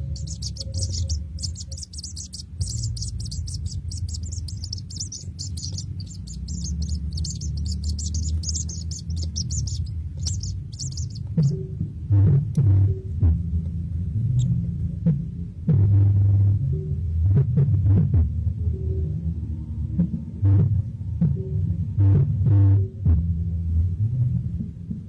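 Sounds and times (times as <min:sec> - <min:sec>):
baby birds chirping: 0:00.0 - 0:11.6
steady low hum: 0:00.0 - 0:25.0.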